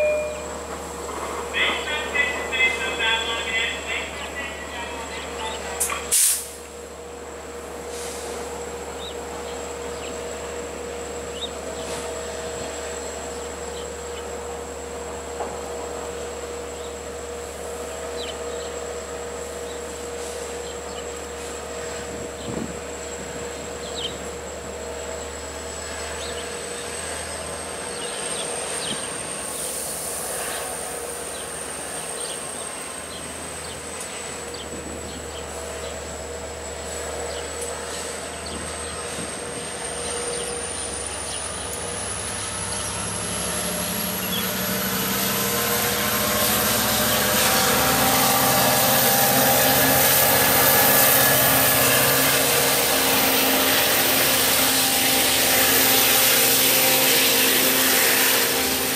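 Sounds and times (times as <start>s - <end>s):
diesel train engine humming: 0.0s - 58.9s
loud hiss: 5.9s - 6.7s, 7.8s - 8.5s, 29.4s - 31.5s
high-pitched whine: 38.5s - 58.9s.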